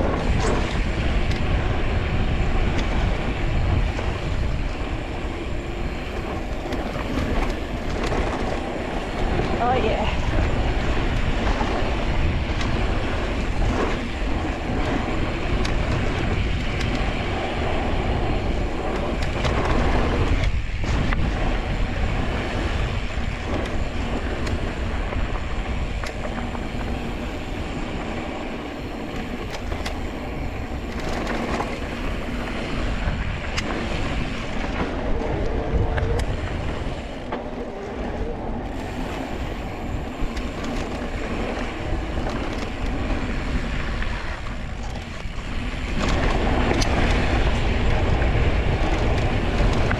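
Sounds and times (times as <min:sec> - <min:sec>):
bike clicks and rattles: 0:00.0 - 0:49.9
tyres rolling over dirt and rock: 0:00.0 - 0:49.9
wind on microphone: 0:00.0 - 0:49.9.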